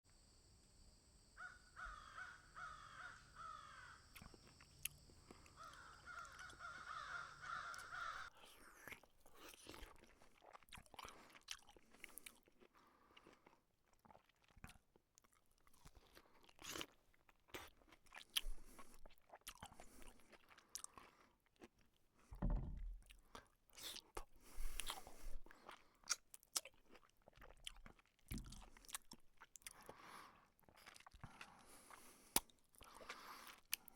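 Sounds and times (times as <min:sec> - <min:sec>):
harsh caw-like calls: 0:01.4 - 0:04.1, 0:05.5 - 0:08.3
cats chewing and crunching food: 0:04.2 - 0:22.4, 0:23.1 - 0:33.9
low thumps: 0:22.4 - 0:23.0.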